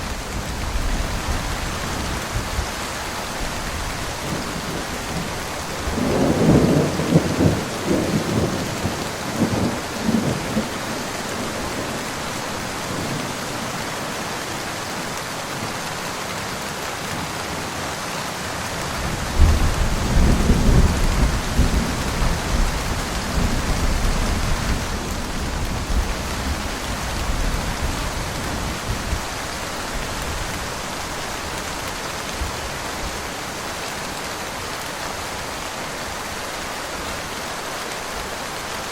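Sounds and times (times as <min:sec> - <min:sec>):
steady rain: 0:00.0 - 0:38.9
thunder rumbling: 0:04.2 - 0:12.0.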